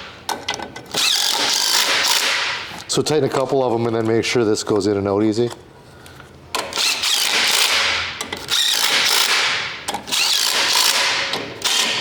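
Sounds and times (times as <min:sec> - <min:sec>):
cordless impact driver: 0:00.9 - 0:02.7, 0:06.6 - 0:12.0.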